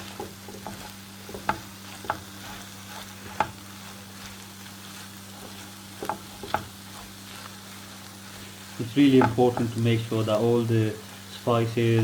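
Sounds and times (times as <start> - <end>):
spoon stirring thick filling: 0.0 - 9.8
faint sizzle: 0.0 - 12.0
spoon knocking against pan: 0.1 - 2.4, 3.3 - 3.6, 5.4 - 6.8, 9.2 - 9.7.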